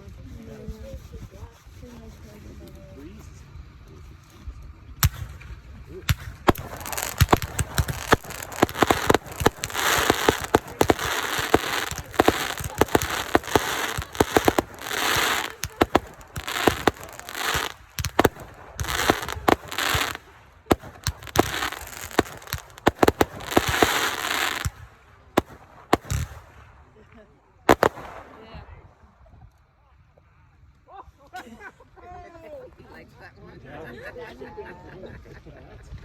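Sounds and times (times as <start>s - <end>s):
fireworks bangs: 5.0s - 26.9s, 27.7s - 28.8s
fireworks crackling: 5.0s - 26.9s, 27.7s - 28.8s.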